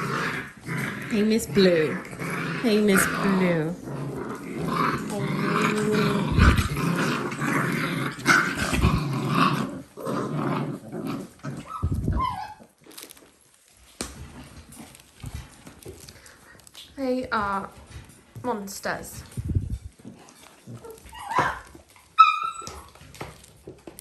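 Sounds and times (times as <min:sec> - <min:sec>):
puppies growling: 0:00.0 - 0:24.0
puppy squealing: 0:11.6 - 0:12.7, 0:20.8 - 0:23.0.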